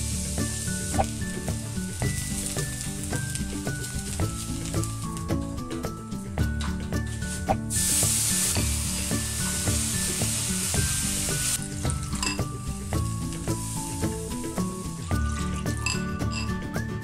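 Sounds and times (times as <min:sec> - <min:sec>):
liquid sizzling in hot pan: 0:00.0 - 0:06.3, 0:07.0 - 0:16.5.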